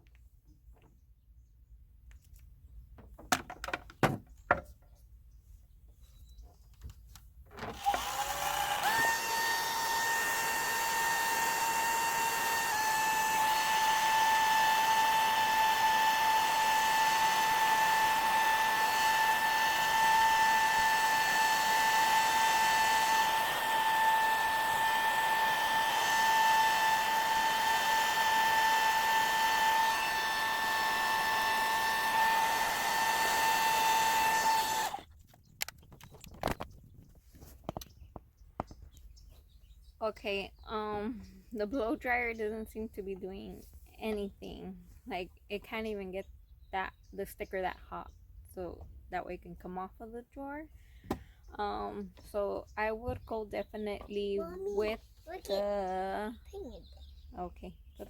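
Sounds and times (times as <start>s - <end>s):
hair dryer whining: 7.7s - 35.0s.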